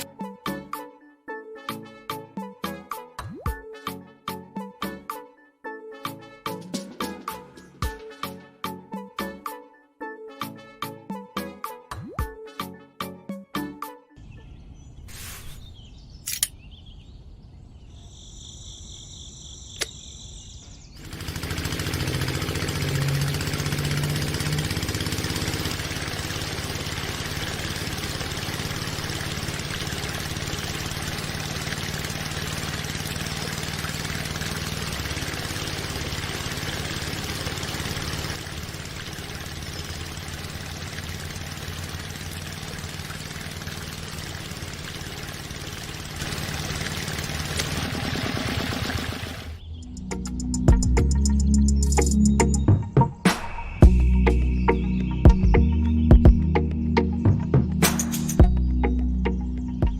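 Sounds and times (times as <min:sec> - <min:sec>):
sharp clicks: 0:19.8 - 0:20.0
diesel engine starting and idling: 0:21.0 - 0:52.7.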